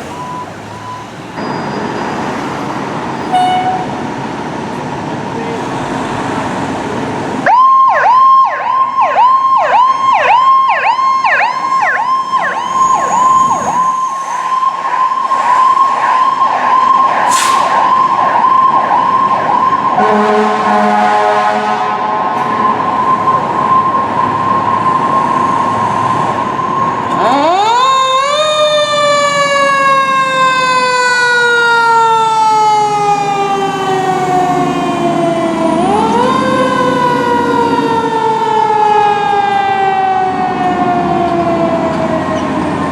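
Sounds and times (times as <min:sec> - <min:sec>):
fire truck siren: 0:00.0 - 0:04.2, 0:05.1 - 0:42.9
horn blast: 0:20.0 - 0:22.2.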